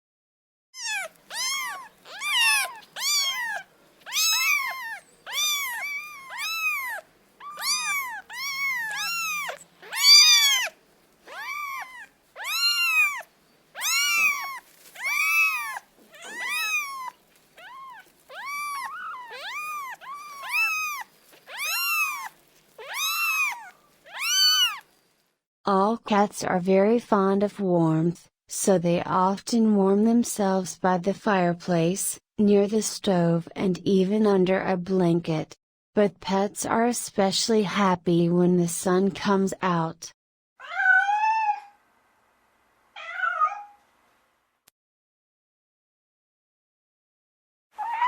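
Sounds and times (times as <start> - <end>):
cat meowing: 0.8 - 24.9, 40.6 - 41.8, 43.0 - 43.8.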